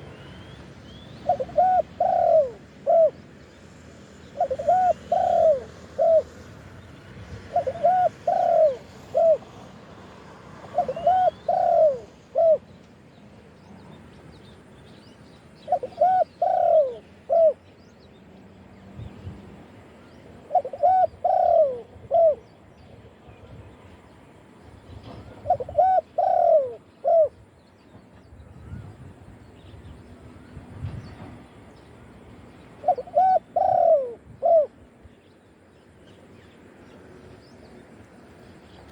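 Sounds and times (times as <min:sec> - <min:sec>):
dove cooing: 0:01.2 - 0:03.2, 0:04.4 - 0:06.5, 0:07.4 - 0:09.9, 0:10.6 - 0:12.7, 0:15.6 - 0:17.6, 0:20.4 - 0:22.5, 0:25.2 - 0:27.4, 0:32.8 - 0:34.8.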